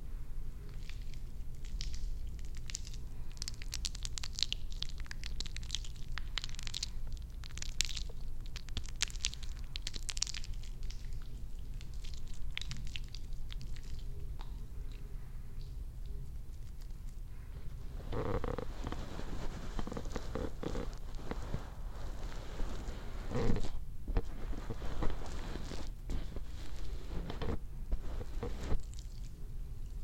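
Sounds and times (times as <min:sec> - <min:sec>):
hair crackling and clicking: 0:18.1 - 0:29.4.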